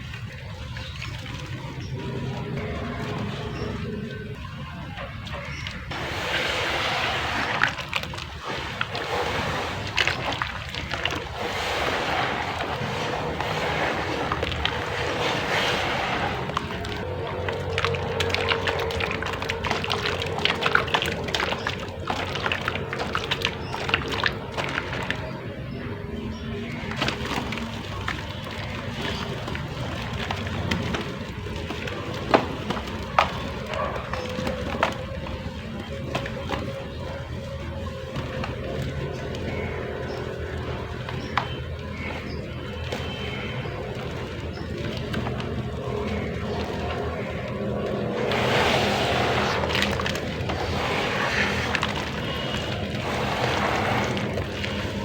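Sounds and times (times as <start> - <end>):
water pouring onto wet mud: 0.0 - 55.0
clay crackling: 5.7 - 55.0.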